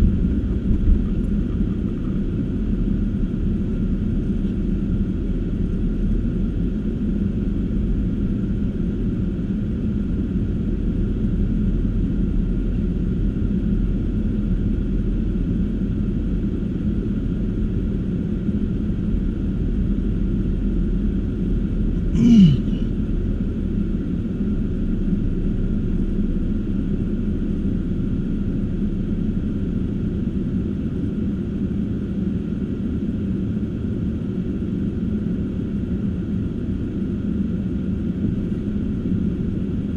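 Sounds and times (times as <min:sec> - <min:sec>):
car driving rumble: 0:00.0 - 0:02.8.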